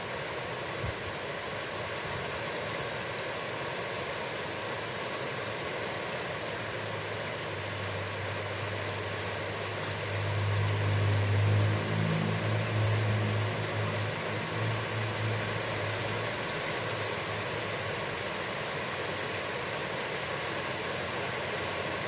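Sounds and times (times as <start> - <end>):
heavy rain on a pond: 0.0 - 22.0
low engine drone: 7.6 - 17.7.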